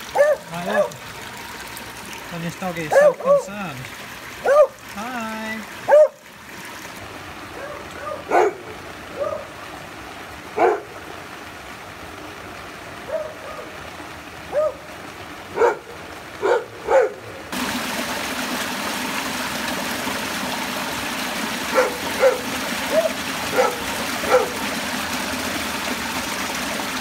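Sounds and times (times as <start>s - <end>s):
rain: 0.0s - 27.0s
running rainwater: 0.0s - 27.0s
dog barking: 0.1s - 1.0s, 2.9s - 3.5s, 4.4s - 4.8s, 5.9s - 6.2s, 7.5s - 9.5s, 10.6s - 10.9s, 13.1s - 13.7s, 14.5s - 14.8s, 15.5s - 17.3s, 21.7s - 24.6s.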